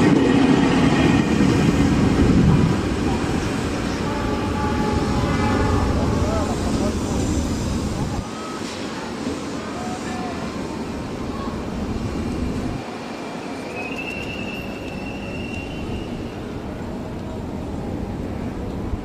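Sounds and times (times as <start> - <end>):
train rumbling on rails: 0.0 - 19.0
high-pitched wheel squeal: 13.6 - 16.4.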